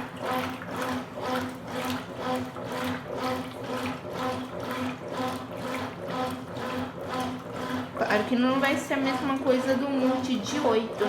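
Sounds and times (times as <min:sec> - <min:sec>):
washing machine motor hum: 0:00.0 - 0:11.0
water sloshing in washing machine: 0:00.0 - 0:11.0.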